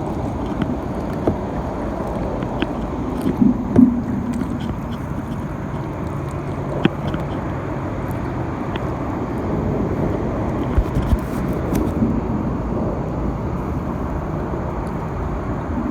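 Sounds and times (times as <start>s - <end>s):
kayak and paddle knocking: 0.0s - 12.0s.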